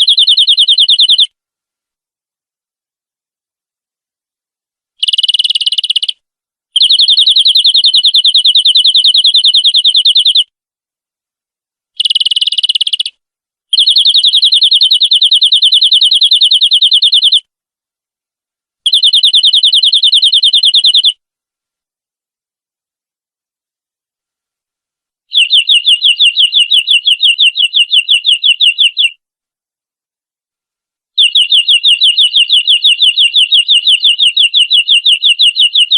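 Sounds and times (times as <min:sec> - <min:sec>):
canary singing trills: 0:00.0 - 0:01.3, 0:05.0 - 0:06.2, 0:06.8 - 0:10.4, 0:12.0 - 0:17.5, 0:18.9 - 0:21.2, 0:25.3 - 0:29.2, 0:31.2 - 0:35.9.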